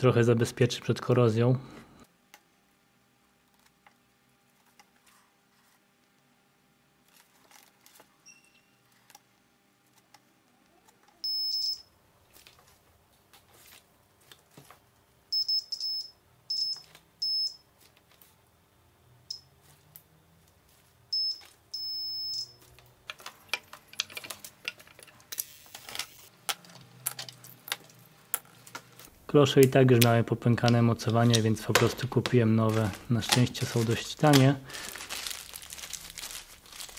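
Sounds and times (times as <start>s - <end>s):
plastic parts clicking: 23.1s - 28.9s.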